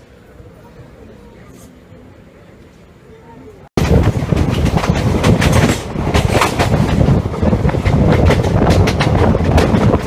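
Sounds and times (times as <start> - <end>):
train rumble: 3.8 - 10.0
wheels clattering over track: 3.8 - 10.0.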